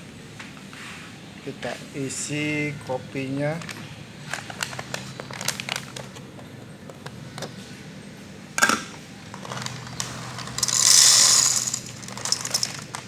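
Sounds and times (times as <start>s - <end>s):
coffee beans pouring and rattling: 9.4s - 13.0s.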